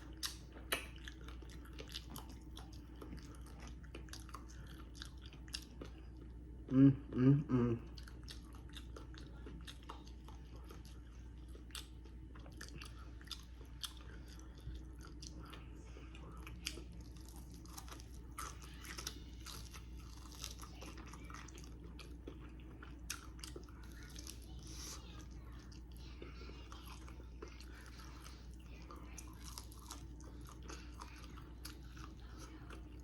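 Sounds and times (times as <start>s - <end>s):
chewing crispy fried chicken: 0.0s - 33.0s
low steady hum: 0.0s - 33.0s.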